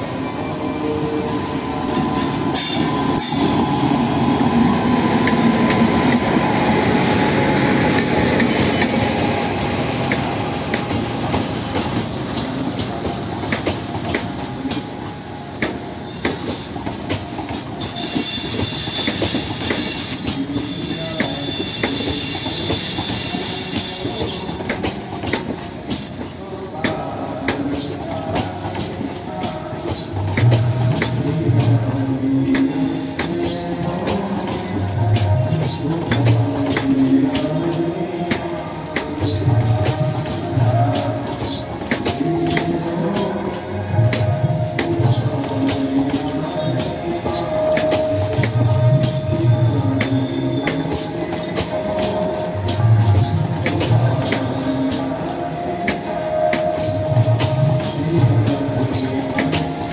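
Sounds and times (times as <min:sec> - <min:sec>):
train passing: 0:00.0 - 0:59.9
high wheel squeal: 0:00.4 - 0:10.2, 0:10.9 - 0:59.9.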